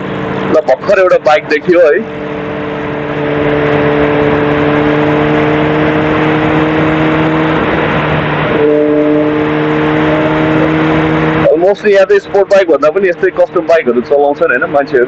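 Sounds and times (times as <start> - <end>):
motorcycle engine cruising: 0.0 - 15.0
heavy wind rush: 2.1 - 11.5.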